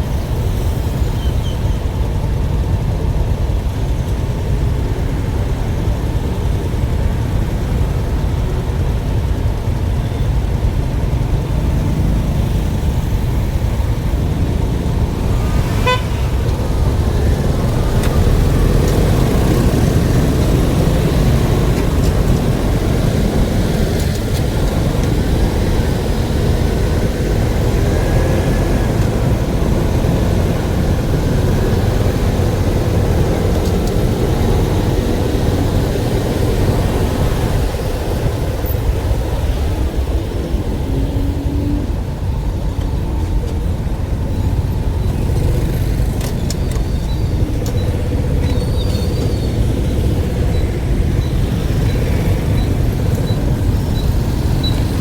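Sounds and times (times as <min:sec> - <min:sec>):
vehicle engine and road noise: 0:00.0 - 0:55.0
short horn toot: 0:15.5 - 0:16.4.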